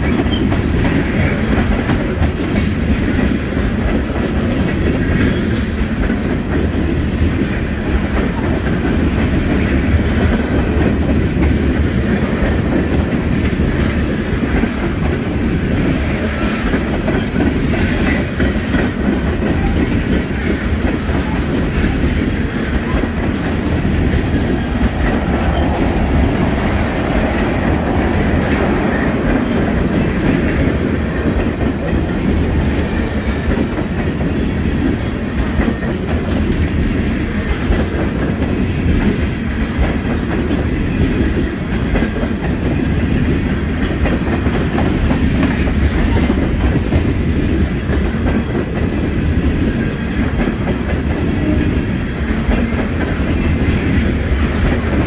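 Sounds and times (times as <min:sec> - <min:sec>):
train wheels clacking on rails: 0:00.0 - 0:55.0.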